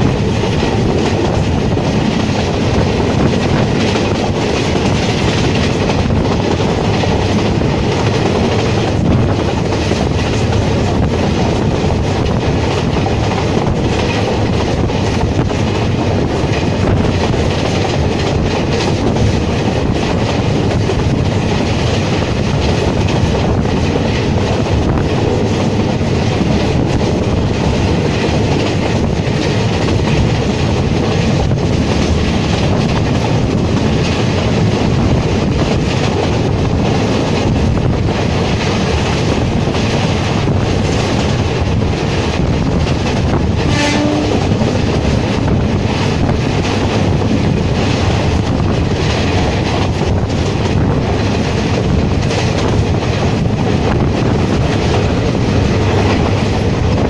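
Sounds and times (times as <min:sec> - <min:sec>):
rushing air: 0:00.0 - 0:57.0
train wheels clattering on rails: 0:00.0 - 0:57.0
train horn note: 0:43.6 - 0:44.6.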